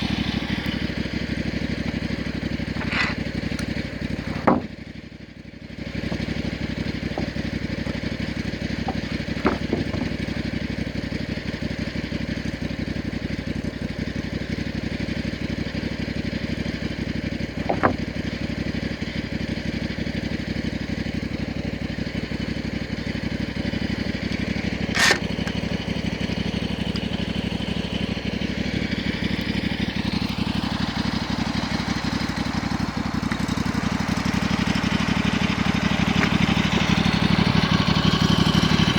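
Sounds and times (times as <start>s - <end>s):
small engine running: 0.0s - 38.9s
sharp knocks: 4.2s - 4.8s, 6.1s - 10.4s, 17.6s - 18.1s.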